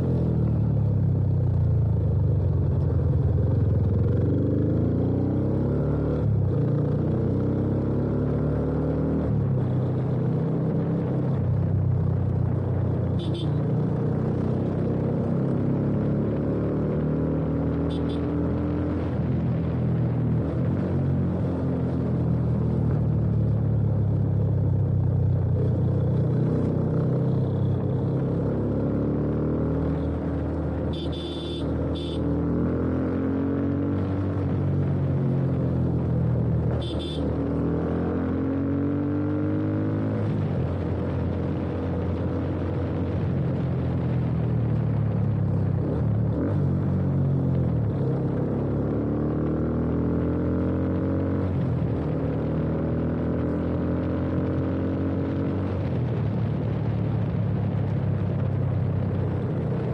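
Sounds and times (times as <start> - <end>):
motorcycle engine accelerating: 1.9 - 59.9.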